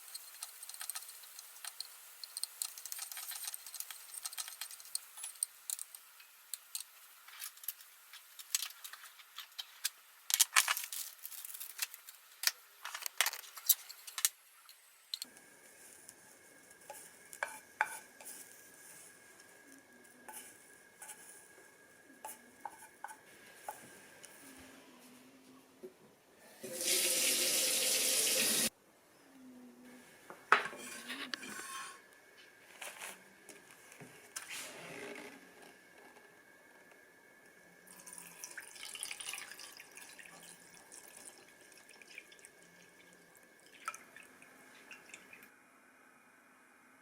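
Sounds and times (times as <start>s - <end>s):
utensils clinking on cookware: 0.0s - 6.8s, 30.6s - 32.0s.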